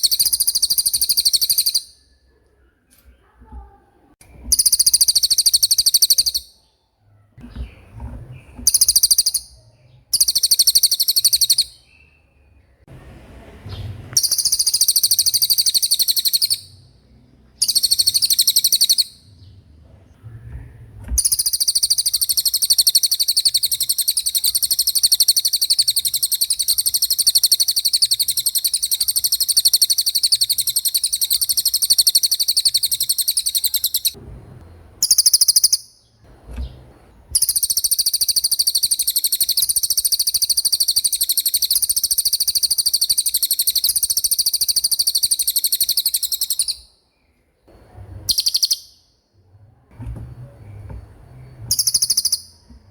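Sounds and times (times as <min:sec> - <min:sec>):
bird high-pitched rolling trill: 0:00.0 - 0:02.0, 0:04.5 - 0:06.6, 0:08.7 - 0:11.8, 0:14.2 - 0:16.8, 0:17.6 - 0:19.3, 0:21.2 - 0:34.2, 0:35.0 - 0:35.9, 0:37.4 - 0:46.8, 0:48.3 - 0:49.0, 0:51.7 - 0:52.6.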